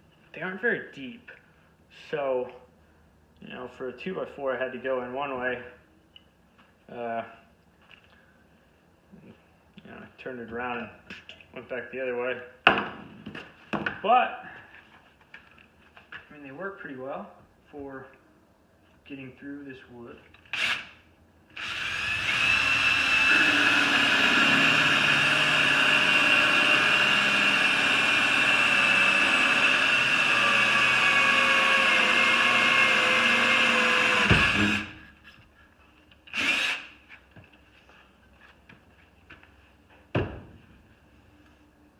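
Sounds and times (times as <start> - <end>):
drill with hole saw in wood: 20.5 - 21.0, 21.6 - 35.2, 36.3 - 37.0.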